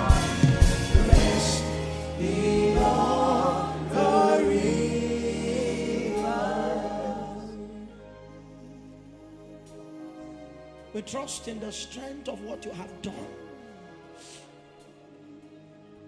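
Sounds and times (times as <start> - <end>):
gospel choir singing: 0.0 - 12.0
instrumental backing: 0.0 - 16.0.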